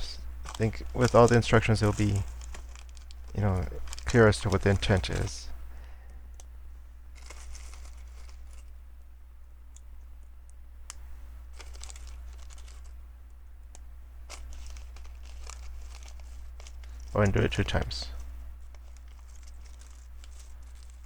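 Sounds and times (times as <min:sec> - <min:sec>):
steady low hum: 0:00.0 - 0:21.0
plastic pieces rattling: 0:00.4 - 0:05.4, 0:07.2 - 0:08.7, 0:11.5 - 0:12.9, 0:14.3 - 0:17.8, 0:18.6 - 0:21.0.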